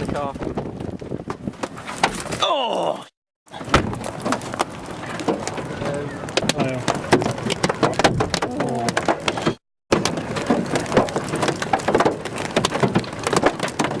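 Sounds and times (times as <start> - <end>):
hail pelting a car: 3.5 - 14.0.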